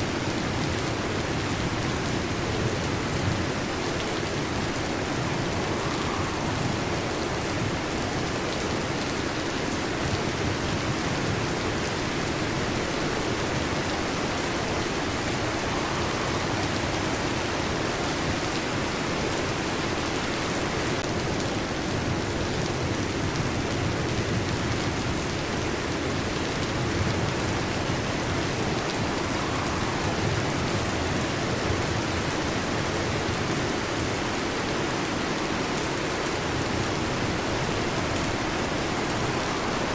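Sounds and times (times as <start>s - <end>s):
heavy rain on a metal roof: 0.0s - 39.9s
thunder rumbling: 0.4s - 9.3s, 13.2s - 19.6s, 25.8s - 33.5s.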